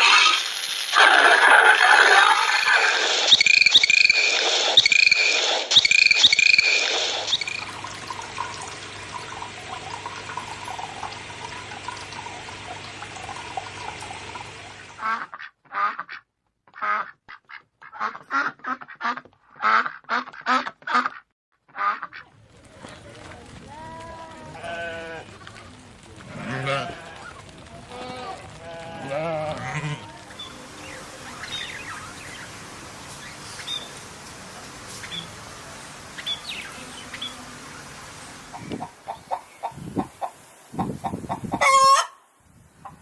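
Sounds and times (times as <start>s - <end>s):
high bird chirps: 2.4s - 7.6s
duck quacking: 15.0s - 22.3s, 41.0s - 42.2s.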